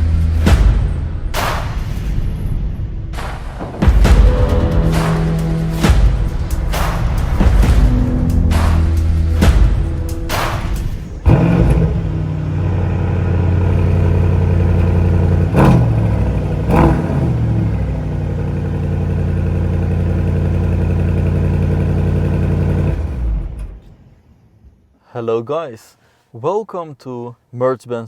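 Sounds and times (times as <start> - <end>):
car engine idling and revving: 4.0 - 24.2.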